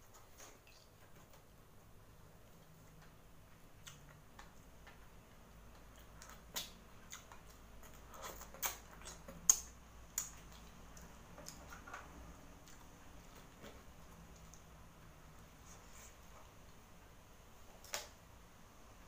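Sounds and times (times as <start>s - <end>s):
wet mouth chewing sounds: 3.7s - 14.7s.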